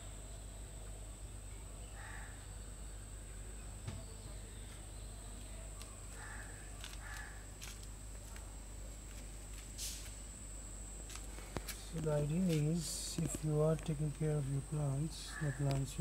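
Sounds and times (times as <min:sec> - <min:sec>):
faint high whine: 0:00.0 - 0:16.0
bird calling: 0:15.0 - 0:16.0.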